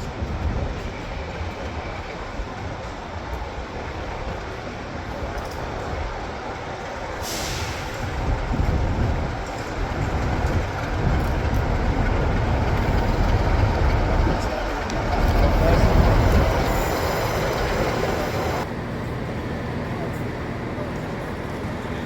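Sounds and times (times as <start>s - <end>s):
train rumbling past: 0.0s - 22.0s.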